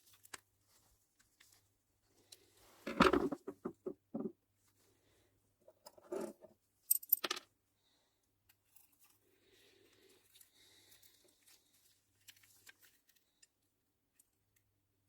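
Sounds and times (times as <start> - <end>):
parts rattling: 2.9 - 4.3.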